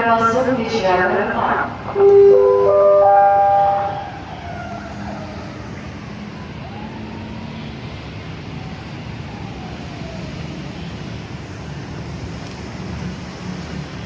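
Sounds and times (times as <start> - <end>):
train rumbling into station: 0.0 - 14.0
announcement chime: 1.1 - 4.1
faint gliding whine: 1.4 - 5.2.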